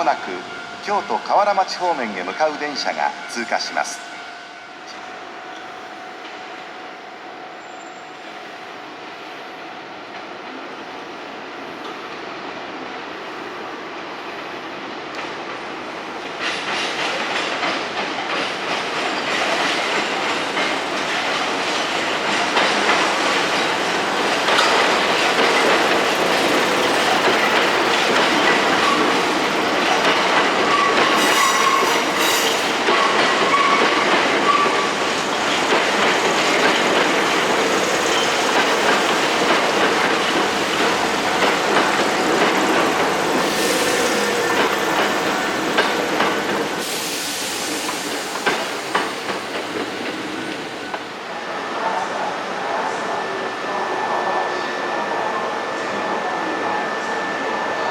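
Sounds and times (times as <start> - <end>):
electric train passing: 0.0 - 57.9.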